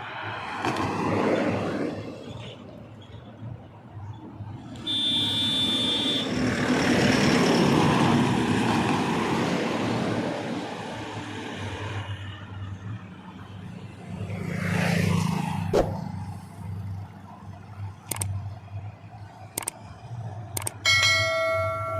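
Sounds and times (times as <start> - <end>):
highway traffic passing: 0.0 - 21.9
sharp clicks: 18.0 - 18.4, 19.6 - 19.8, 20.5 - 20.8.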